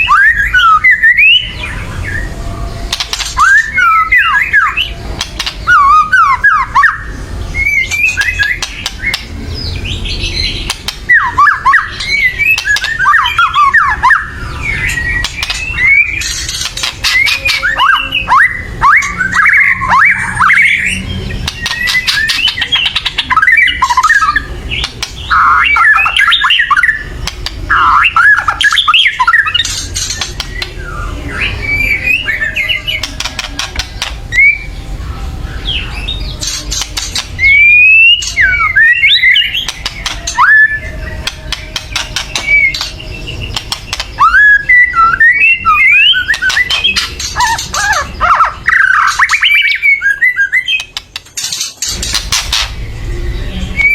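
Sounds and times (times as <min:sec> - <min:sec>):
bird singing whistled phrases: 0:00.0 - 0:02.3, 0:03.2 - 0:10.5, 0:11.1 - 0:27.1, 0:37.4 - 0:41.3, 0:42.0 - 0:51.0
harsh rattling bird notes: 0:00.0 - 0:53.9.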